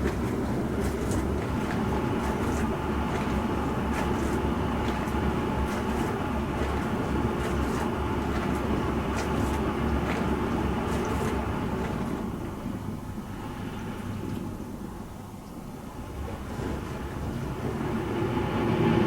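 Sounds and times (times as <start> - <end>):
dishwasher humming: 0.0 - 13.0.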